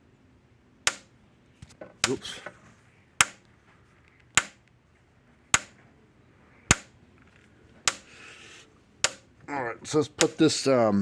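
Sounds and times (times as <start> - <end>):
electric fence charger snapping: 0.9 - 1.1, 3.2 - 3.5, 4.3 - 4.7, 5.6 - 5.8, 6.7 - 6.9, 7.9 - 8.1, 9.0 - 9.3, 10.2 - 10.4.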